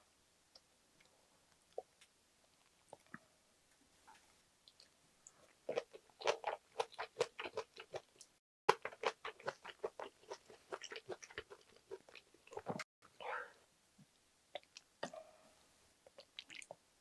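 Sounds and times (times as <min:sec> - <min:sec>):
person chewing food: 0:04.6 - 0:12.9, 0:14.5 - 0:15.2, 0:16.0 - 0:16.8.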